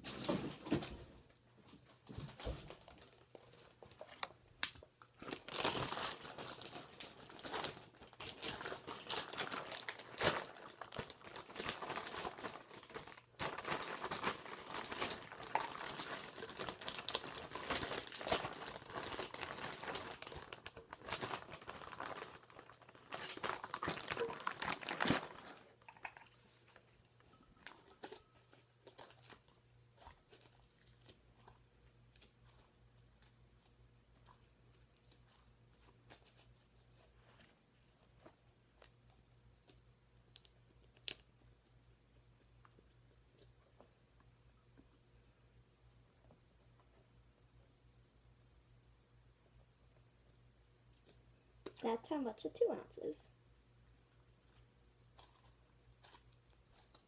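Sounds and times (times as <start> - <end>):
slime packaging crinkling: 2.4 - 26.9, 40.3 - 41.4.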